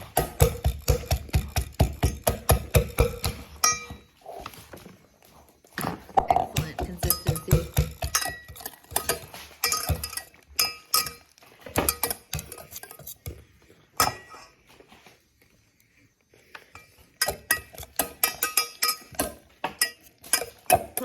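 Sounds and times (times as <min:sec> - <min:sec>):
whisk knocking against a bowl: 0:00.0 - 0:03.9, 0:06.6 - 0:12.6.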